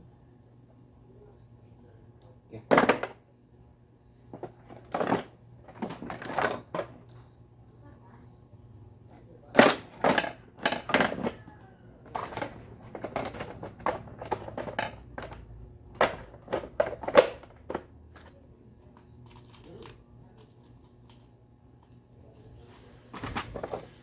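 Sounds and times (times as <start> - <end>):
blender parts clicking and knocking: 9.6 - 18.2.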